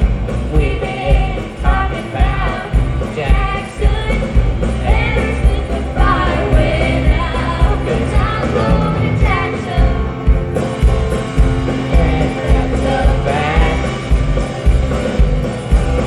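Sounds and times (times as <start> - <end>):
live rock band playing: 0.0 - 16.0
person singing: 11.7 - 14.1.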